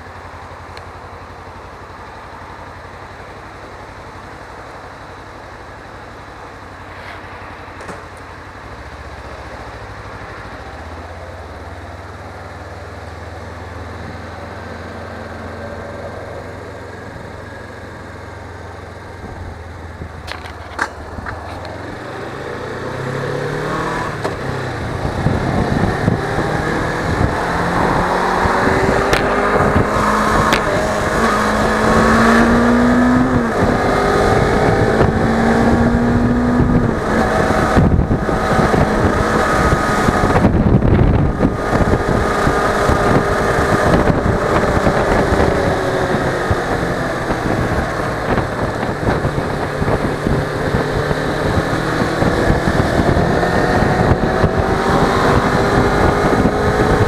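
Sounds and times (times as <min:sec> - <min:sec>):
motorcycle engine accelerating: 0:00.0 - 0:57.0
wind noise on microphone: 0:19.1 - 0:57.0.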